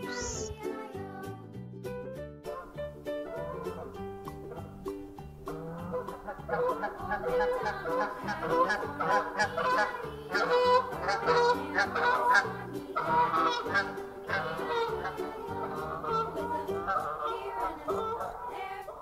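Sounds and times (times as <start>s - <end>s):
geese honking: 5.5s - 19.0s.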